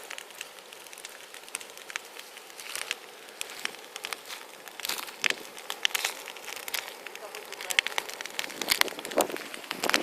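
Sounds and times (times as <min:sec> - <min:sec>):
bonfire crackling and popping: 0:00.0 - 0:10.0.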